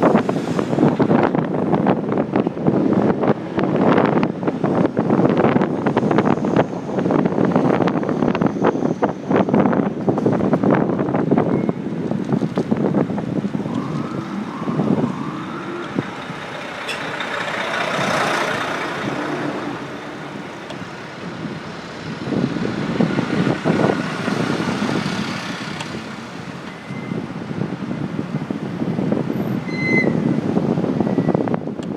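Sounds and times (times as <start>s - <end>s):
city traffic noise: 0.0s - 31.9s
wind buffeting microphone: 0.0s - 31.9s
vehicle passing: 13.2s - 21.2s.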